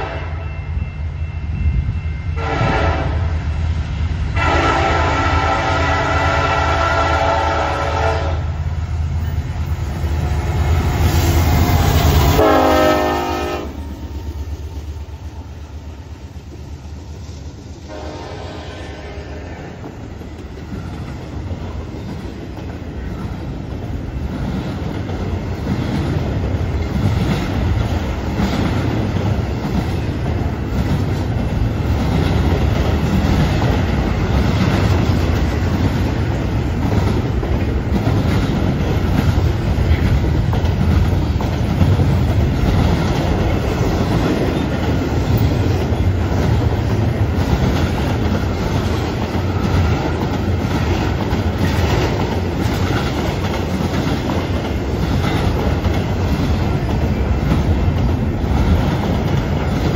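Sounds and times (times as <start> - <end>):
train wheels clattering on rails: 19.3 - 59.9.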